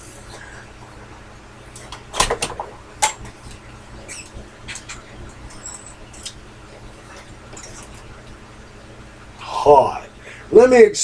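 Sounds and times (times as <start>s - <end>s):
short high squeaks: 4.0s - 6.3s.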